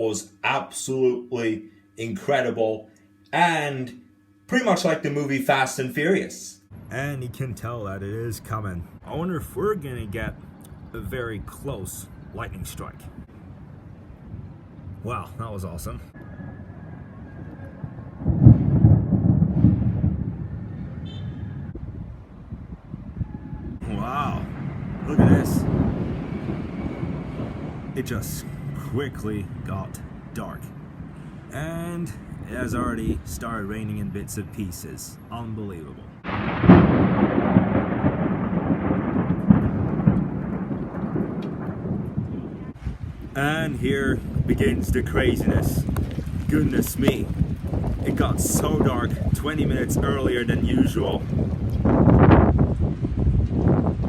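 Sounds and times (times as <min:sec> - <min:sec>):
thunder rumbling: 0:06.7 - 0:34.5, 0:36.2 - 0:54.0
rain: 0:23.8 - 0:32.1, 0:36.2 - 0:54.0.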